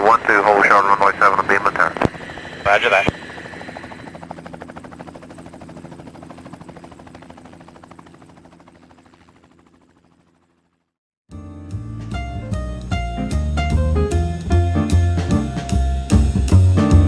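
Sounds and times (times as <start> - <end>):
helicopter rotor chop: 0.0 - 10.9
helicopter engine hum: 0.0 - 11.0.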